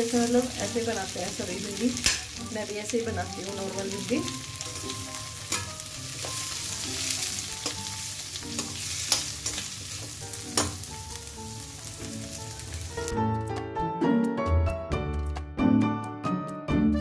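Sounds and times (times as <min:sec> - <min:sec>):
vegetables sizzling in a pan: 0:00.0 - 0:13.1
background music: 0:00.0 - 0:17.0.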